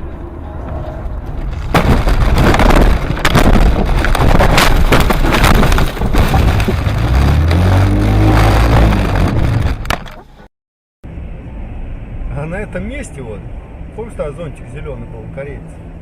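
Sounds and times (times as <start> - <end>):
car rumbling and rattling: 0.0 - 10.5
engine revving: 6.6 - 9.9.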